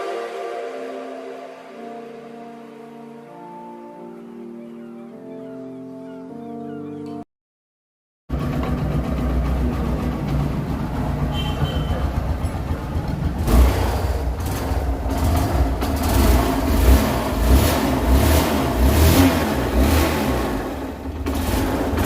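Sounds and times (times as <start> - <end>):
motorcycle engine revving: 8.3 - 22.0.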